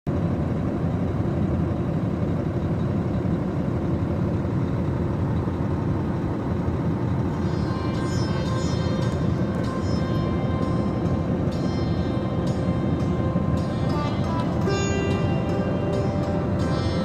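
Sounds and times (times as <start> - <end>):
low rumbling noise: 0.1 - 17.0
faint music: 4.4 - 17.0.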